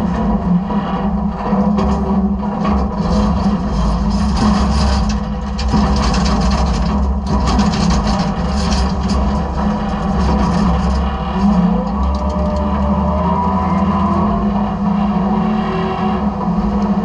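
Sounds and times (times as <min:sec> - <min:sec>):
garbage truck humming: 0:00.0 - 0:17.0
trash crackling and clattering: 0:01.1 - 0:12.7.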